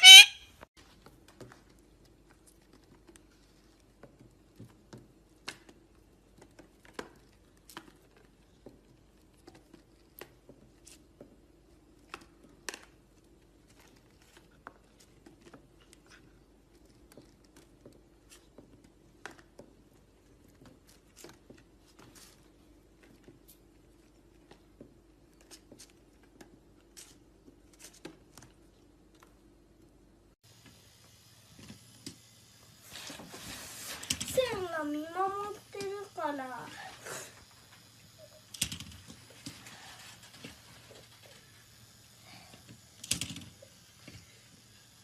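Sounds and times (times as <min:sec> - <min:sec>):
small clicks and rustles: 0:00.8 - 0:29.9.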